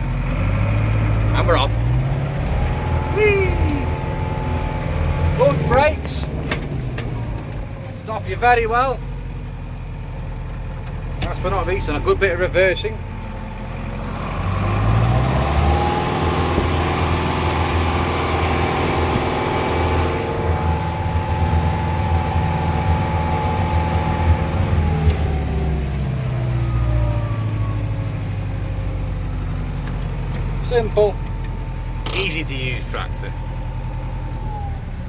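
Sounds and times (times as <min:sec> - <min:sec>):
tractor diesel engine revving: 0:00.0 - 0:35.0.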